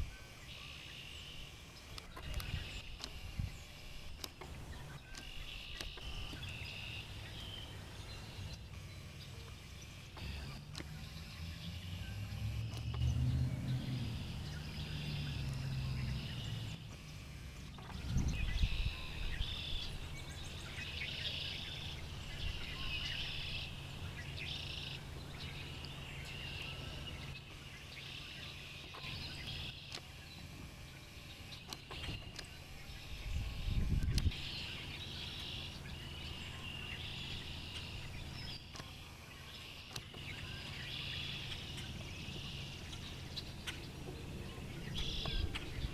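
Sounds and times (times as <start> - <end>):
songbirds singing: 0.0 - 45.9.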